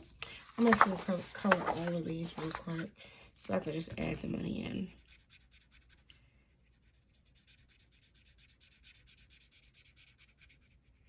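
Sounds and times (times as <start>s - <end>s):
marker scratching on paper: 5.0s - 11.0s.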